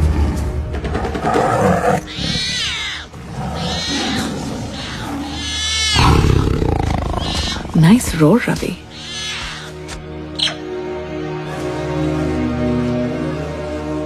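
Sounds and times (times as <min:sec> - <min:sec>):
low music drone: 0:00.0 - 0:02.2, 0:06.7 - 0:14.0
tiger roaring: 0:01.0 - 0:07.8.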